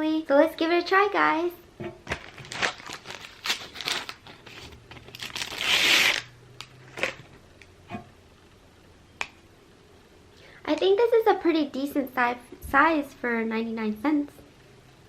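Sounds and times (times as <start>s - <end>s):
paper wrapper crinkling and tearing: 2.0s - 7.2s.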